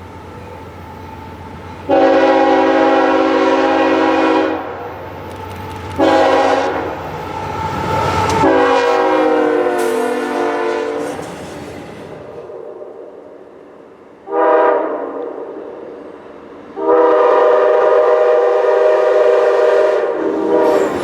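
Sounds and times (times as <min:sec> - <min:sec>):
train rumble: 0:00.0 - 0:21.0
train air horn blasts: 0:01.9 - 0:04.8, 0:06.0 - 0:11.4, 0:14.2 - 0:15.4, 0:16.8 - 0:21.0.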